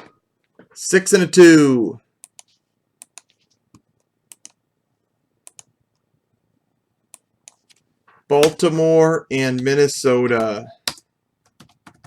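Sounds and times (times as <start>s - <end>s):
computer mouse clicks: 2.2s - 4.6s, 5.4s - 5.7s.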